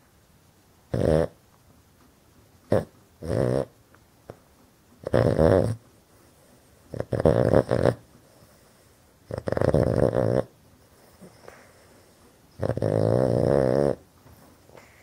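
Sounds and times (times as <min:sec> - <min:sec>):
dog snoring loudly: 0:00.9 - 0:01.4, 0:02.7 - 0:03.8, 0:05.0 - 0:05.8, 0:06.9 - 0:11.4, 0:12.6 - 0:14.0.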